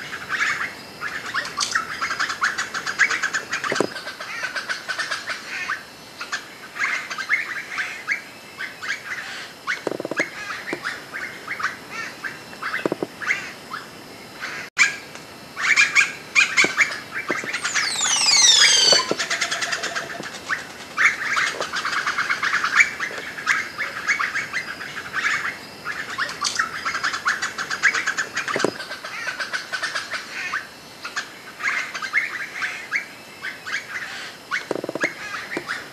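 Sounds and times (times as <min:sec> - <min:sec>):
birds chirping: 0:15.6 - 0:29.1
high bird notes sliding downward: 0:17.3 - 0:20.3.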